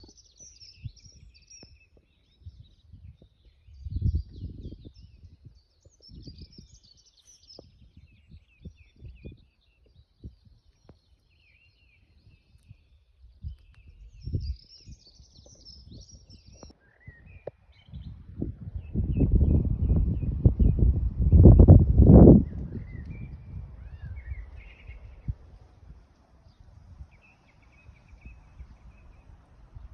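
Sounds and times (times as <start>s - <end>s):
small birds chirping and singing: 0.0s - 29.9s.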